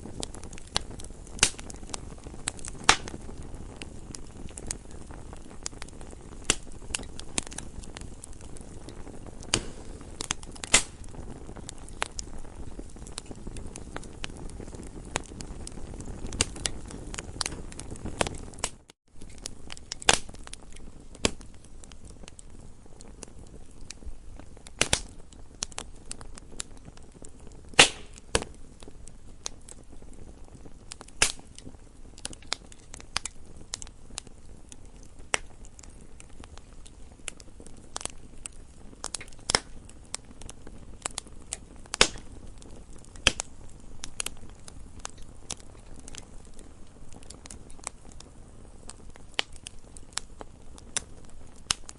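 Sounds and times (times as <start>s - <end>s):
campfire pops and snaps: 0.0s - 51.9s
low rush of flames: 0.0s - 51.9s.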